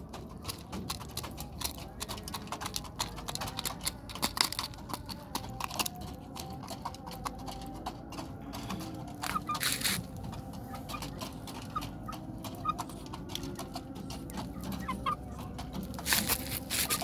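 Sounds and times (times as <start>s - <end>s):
scratching clicks: 0.0s - 17.0s
chickens clucking softly: 5.0s - 17.0s.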